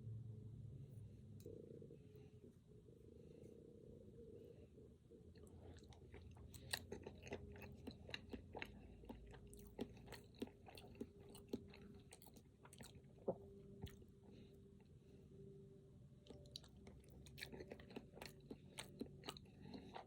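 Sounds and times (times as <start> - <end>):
faint steady hum: 0.0 - 20.0
chewing mouth clicks and smacks: 5.3 - 14.4, 16.2 - 20.0.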